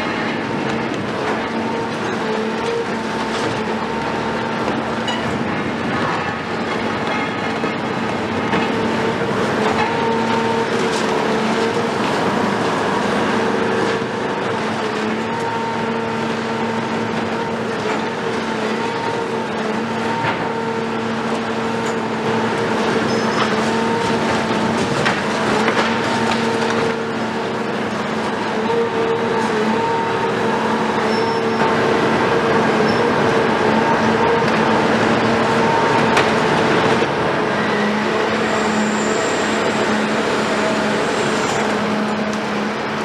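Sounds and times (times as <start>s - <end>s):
excavator diesel engine humming: 0.0s - 43.0s
demolition clatter: 21.6s - 28.8s, 32.8s - 38.0s.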